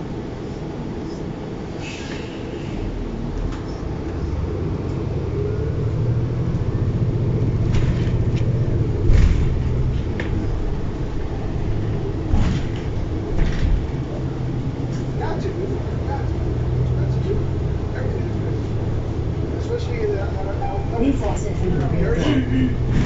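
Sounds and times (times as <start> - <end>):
bus engine rumbling: 0.0 - 23.0
sharp bump: 9.0 - 10.5, 12.3 - 14.0.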